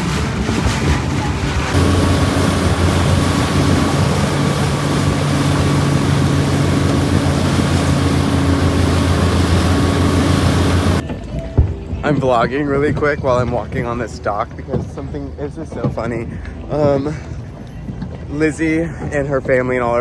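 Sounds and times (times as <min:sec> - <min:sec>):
motorboat engine drone: 0:00.0 - 0:11.0
wind and water rushing: 0:00.0 - 0:11.6.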